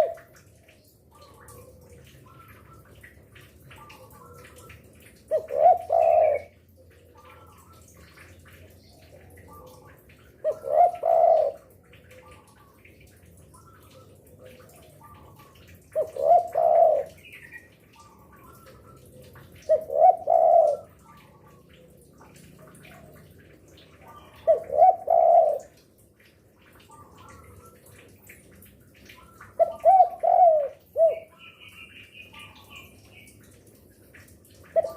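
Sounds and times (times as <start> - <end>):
dove cooing: 0.0 - 0.3, 1.1 - 3.0, 3.7 - 12.8, 13.6 - 17.4, 18.0 - 25.8, 29.2 - 33.8, 34.6 - 34.9.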